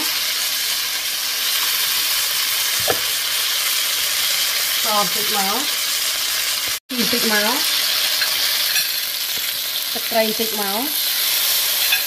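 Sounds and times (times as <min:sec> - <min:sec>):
food sizzling in a wok: 0:00.0 - 0:12.0
brief knock: 0:02.8 - 0:03.1.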